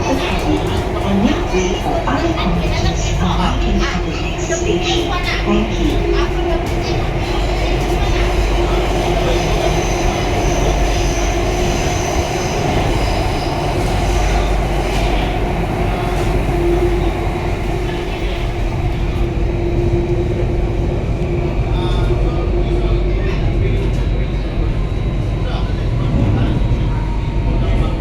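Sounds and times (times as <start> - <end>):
metro train rumbling: 0.0 - 28.0.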